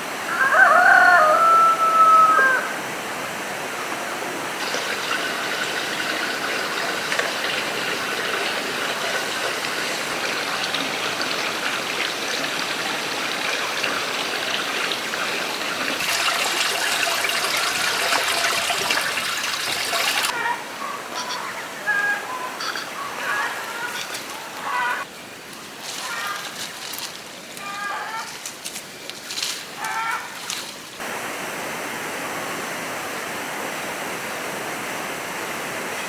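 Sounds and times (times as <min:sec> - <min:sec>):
running water rushing: 0:02.8 - 0:20.4, 0:23.1 - 0:27.6.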